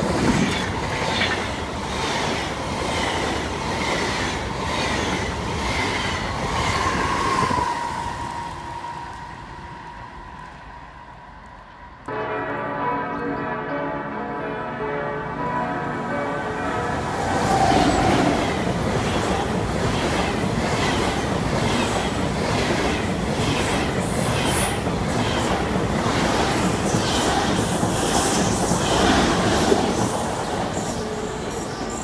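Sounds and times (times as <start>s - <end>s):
train wheels rushing on rail: 0.0s - 11.8s, 16.7s - 32.0s
clickety-clack over rail joints: 17.2s - 32.0s.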